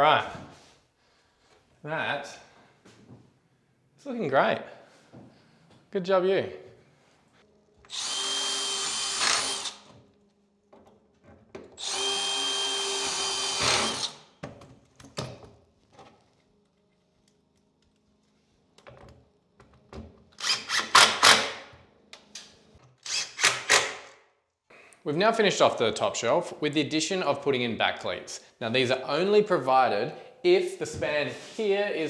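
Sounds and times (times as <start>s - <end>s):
power drill driving screws: 7.9s - 10.0s, 11.8s - 14.2s, 20.4s - 21.6s, 23.0s - 24.0s.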